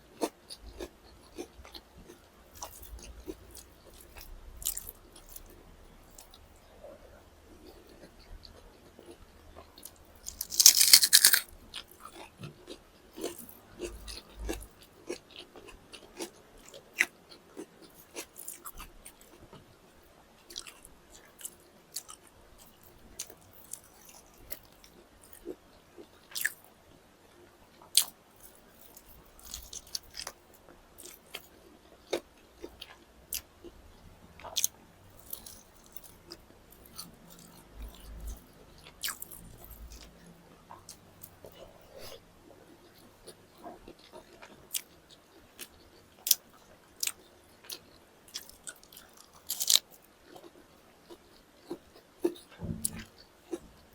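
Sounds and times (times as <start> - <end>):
person biting and chewing food: 9.8 - 11.9, 47.0 - 50.4, 51.1 - 53.6
loud crunching: 10.3 - 11.4.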